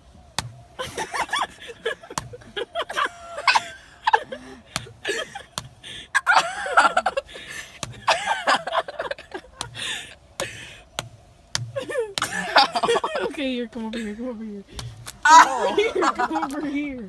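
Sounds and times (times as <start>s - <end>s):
fists smacking watermelon: 0.3s - 0.6s, 2.1s - 2.5s, 4.7s - 5.8s, 7.7s - 8.1s, 9.5s - 12.7s, 14.7s - 15.6s
boys laughing and shrieking: 0.8s - 10.7s, 11.8s - 13.4s, 15.2s - 16.9s.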